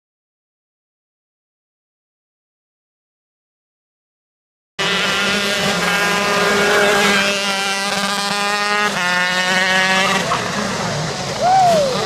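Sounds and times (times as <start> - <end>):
engine running at high speed: 4.8 - 12.0.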